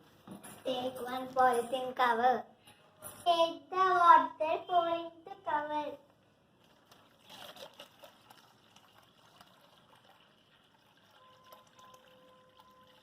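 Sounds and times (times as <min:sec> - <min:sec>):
water trickling into plastic bag: 0:06.5 - 0:13.0.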